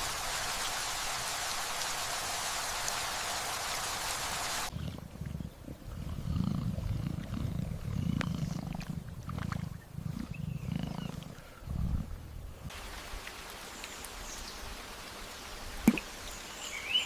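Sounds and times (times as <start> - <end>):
rain: 0.0 - 4.7, 12.6 - 17.0
large animal growling: 4.7 - 12.3.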